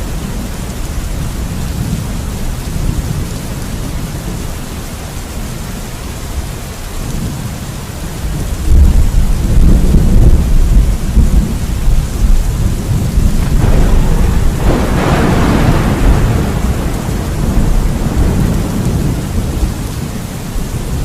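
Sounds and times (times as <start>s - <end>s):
steady rain falling: 0.0s - 21.0s
low rolling thunder: 8.2s - 21.0s.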